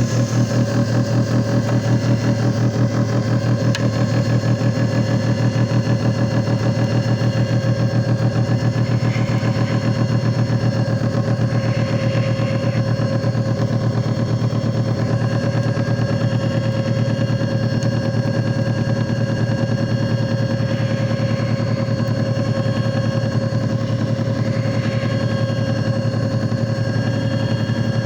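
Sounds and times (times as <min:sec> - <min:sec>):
machine motor hum pulsing: 0:00.0 - 0:28.0.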